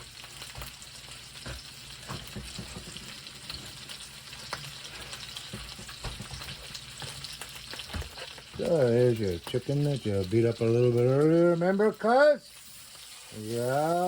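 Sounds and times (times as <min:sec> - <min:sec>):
food sizzling in a pan: 0:00.0 - 0:14.0
knocks in a pan: 0:01.4 - 0:03.2, 0:05.5 - 0:07.2.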